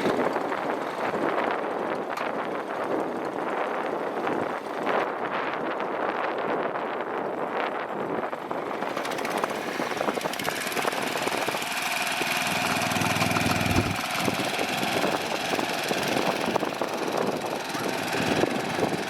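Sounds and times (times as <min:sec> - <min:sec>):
small gasoline engine running: 0:00.0 - 0:05.6, 0:08.3 - 0:19.0.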